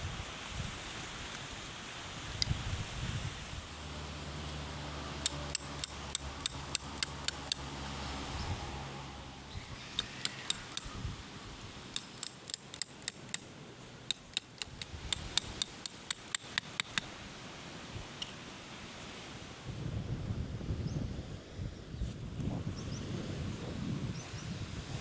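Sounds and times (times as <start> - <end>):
wind: 0.0 - 25.0.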